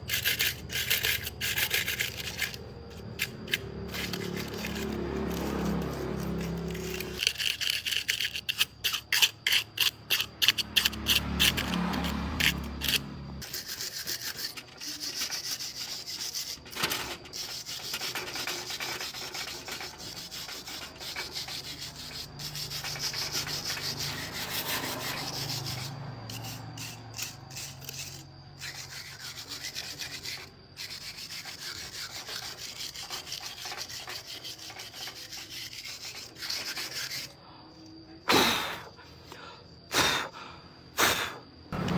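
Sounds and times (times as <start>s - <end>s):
hand sanding strokes: 0.0s - 9.3s, 13.4s - 37.4s.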